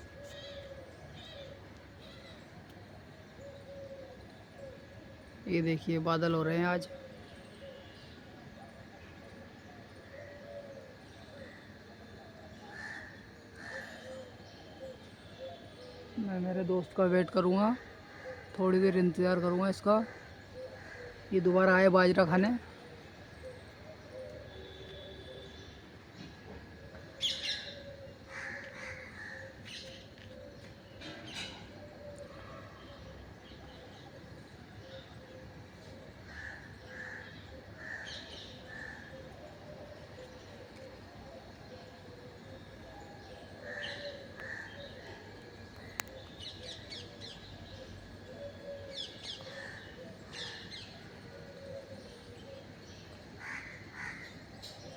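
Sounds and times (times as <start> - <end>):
crow cawing: 12.7 - 14.1, 20.0 - 21.4, 28.3 - 29.6, 36.3 - 39.3, 43.6 - 45.2, 53.4 - 54.4.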